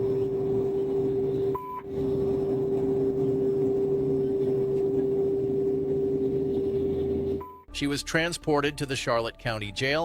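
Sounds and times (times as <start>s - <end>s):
steady electronic hum tone: 0.0s - 7.7s.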